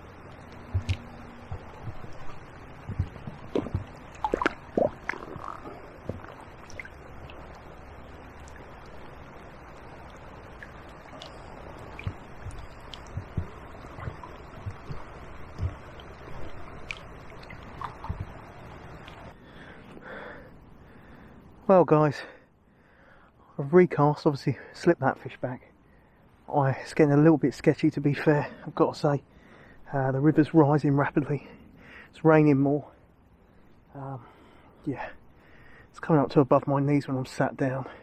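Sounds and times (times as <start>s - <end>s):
flowing floodwater rushing: 0.0s - 19.4s
water splashing and sloshing: 0.0s - 20.4s.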